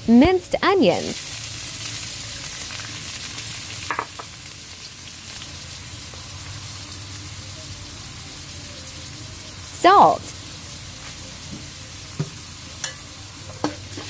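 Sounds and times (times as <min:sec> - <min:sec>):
onion and garlic sizzling in oil: 0:00.0 - 0:14.0.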